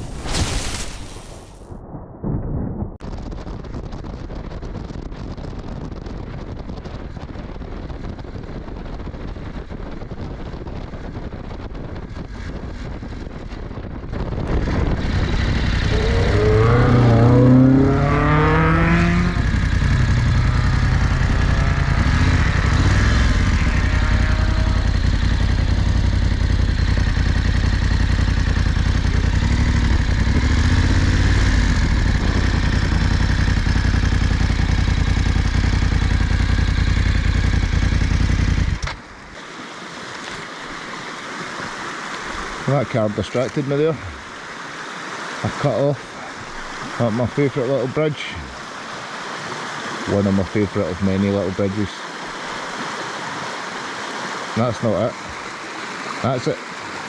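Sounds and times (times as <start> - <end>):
motorcycle engine revving: 14.0 - 39.0.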